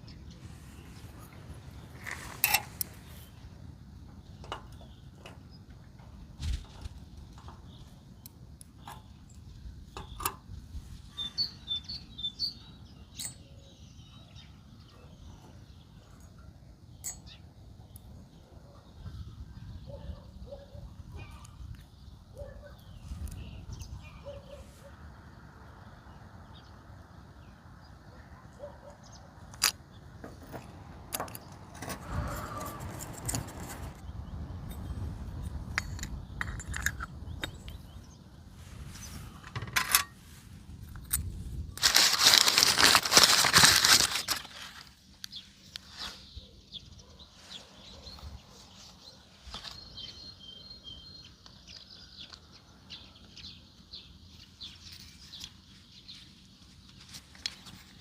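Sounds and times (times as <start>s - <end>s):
clicks of small metal parts: 2.0s - 3.0s, 6.6s - 10.5s, 13.1s - 13.5s, 29.5s - 29.8s, 35.4s - 37.9s.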